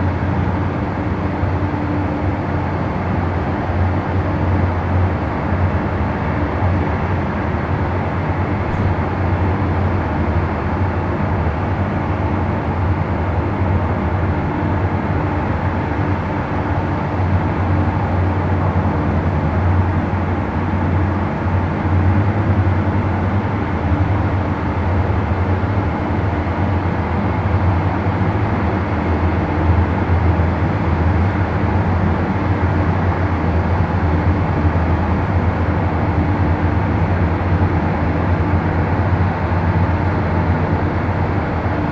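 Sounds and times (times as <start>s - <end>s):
low mechanical hum: 0.0s - 41.9s.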